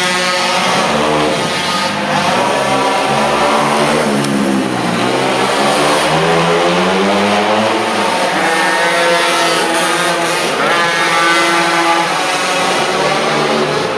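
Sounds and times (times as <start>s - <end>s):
small two-stroke engine revving: 0.0s - 13.9s.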